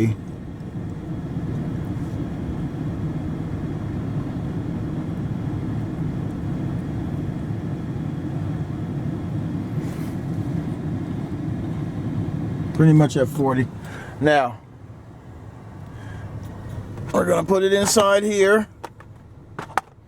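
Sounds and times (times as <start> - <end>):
air conditioning fan blowing: 0.0 - 20.0
van engine idling: 0.0 - 20.0
faint rustle: 9.7 - 10.7.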